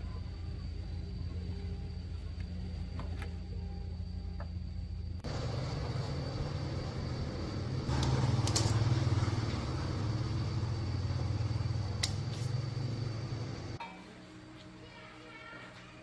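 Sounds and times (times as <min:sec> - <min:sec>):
motorcycle engine running: 0:05.2 - 0:13.8
sharp clicks: 0:11.9 - 0:12.3.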